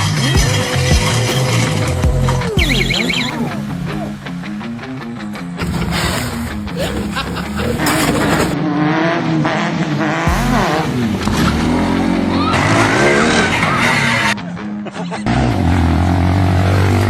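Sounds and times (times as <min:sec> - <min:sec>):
motorcycle engines revving: 0:05.6 - 0:14.4, 0:15.3 - 0:17.0.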